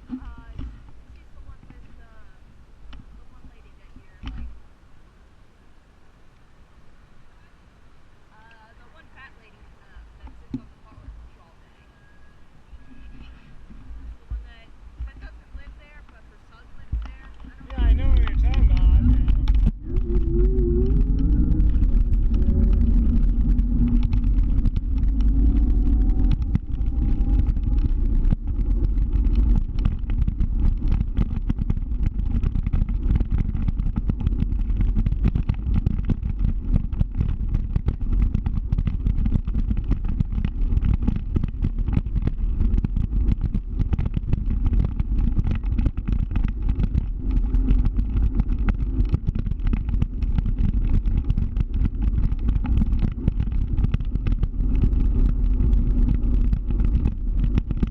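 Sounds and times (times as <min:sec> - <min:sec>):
wind on microphone: 0:00.0 - 0:04.7, 0:08.3 - 0:57.9
scooter riding rumble: 0:00.0 - 0:04.8, 0:07.3 - 0:57.9
faint rising whine: 0:04.5 - 0:38.5.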